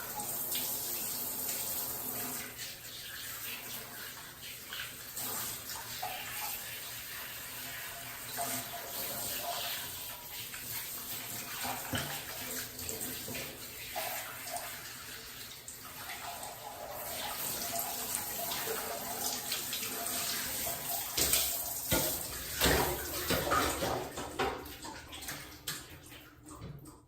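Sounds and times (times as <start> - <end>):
tap water splashing: 10.3 - 14.9, 17.2 - 27.0.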